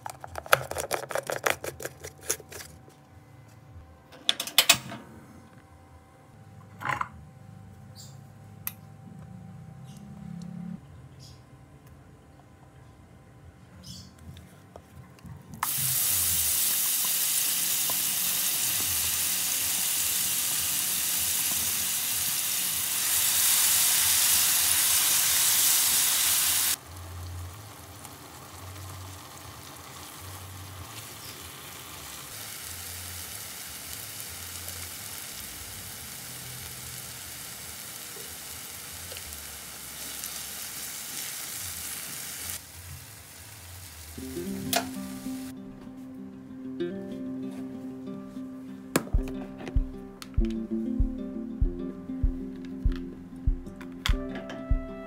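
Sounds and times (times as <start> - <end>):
spice paste sizzling in oil: 15.6 - 45.5.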